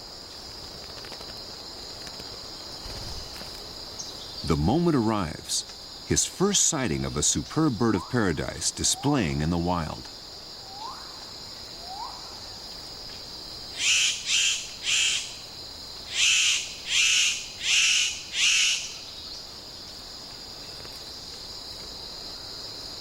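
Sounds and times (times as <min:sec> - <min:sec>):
forest insects droning: 0:00.0 - 0:23.0
bird harsh calls: 0:13.7 - 0:15.4, 0:16.1 - 0:19.2.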